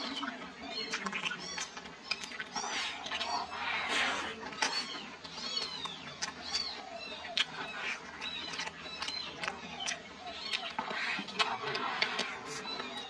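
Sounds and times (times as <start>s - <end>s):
person chewing food: 0.9s - 13.0s.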